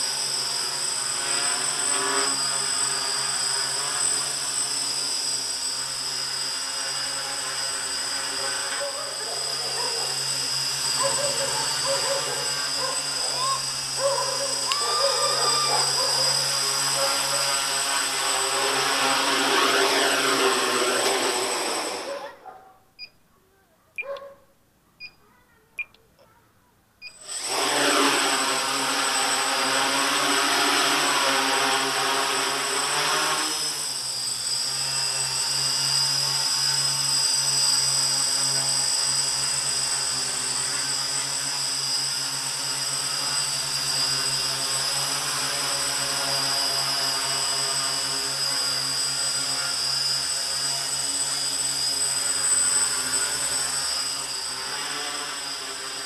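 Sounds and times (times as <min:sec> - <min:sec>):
drone propellers whining: 0:00.0 - 0:22.2, 0:27.0 - 0:56.0
short clicks: 0:25.8 - 0:26.3.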